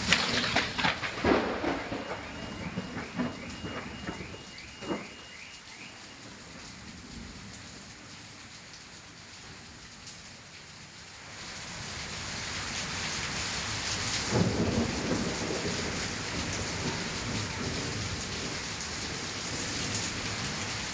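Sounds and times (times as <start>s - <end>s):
thunder crack: 0.0s - 5.4s, 14.3s - 19.7s
heavy rain pouring: 0.0s - 20.9s.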